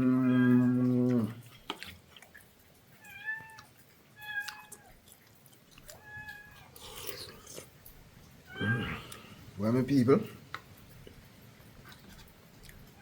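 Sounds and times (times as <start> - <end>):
cat meowing: 0.1 - 0.9, 3.0 - 5.0, 5.9 - 6.7, 8.5 - 9.1.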